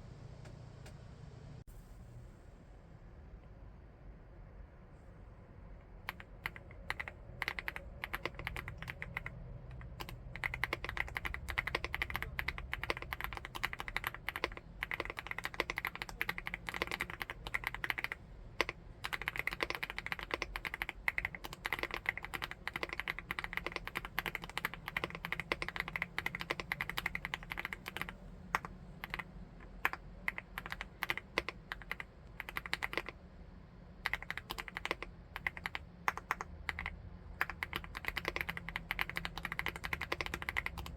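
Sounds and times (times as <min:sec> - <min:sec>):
fast typing on keyboard: 0:06.0 - 0:33.2, 0:34.0 - 0:40.9.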